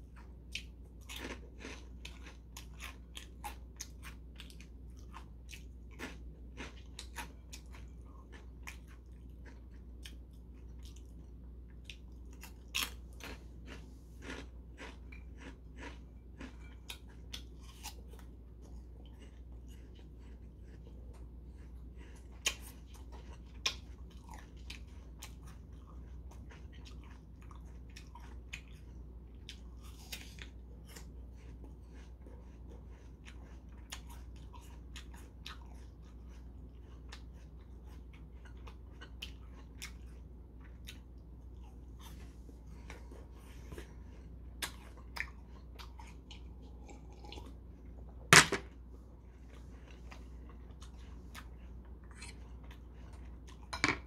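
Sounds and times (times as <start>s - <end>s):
man chewing crisp apple: 0.0s - 53.8s
steady low hum: 0.0s - 54.0s.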